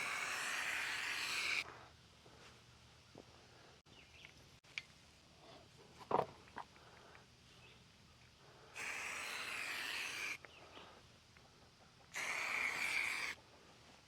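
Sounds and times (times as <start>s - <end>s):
spray paint can hissing: 0.0s - 1.6s, 8.8s - 10.4s, 12.2s - 13.4s.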